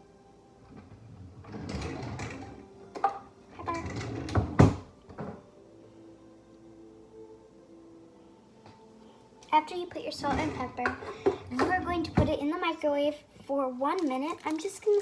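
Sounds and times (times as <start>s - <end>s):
rustling and shaking: 13.4s - 15.0s.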